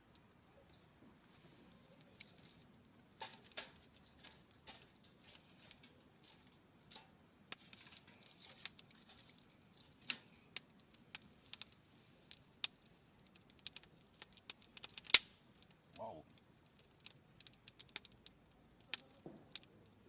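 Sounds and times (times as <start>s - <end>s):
wood fire crackling: 7.5s - 20.0s.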